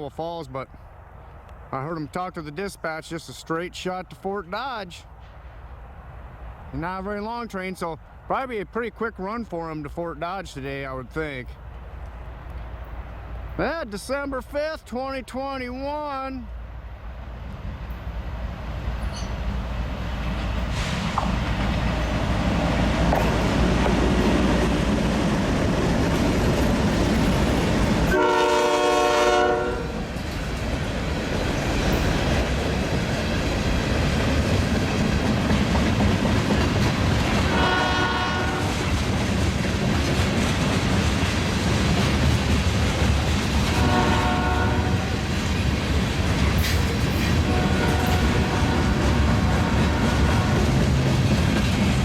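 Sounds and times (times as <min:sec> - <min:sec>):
freight train rumbling past: 0:00.0 - 0:14.9, 0:15.7 - 0:52.0
train air horn: 0:28.1 - 0:30.0, 0:37.5 - 0:38.8, 0:43.7 - 0:45.1, 0:47.4 - 0:50.7.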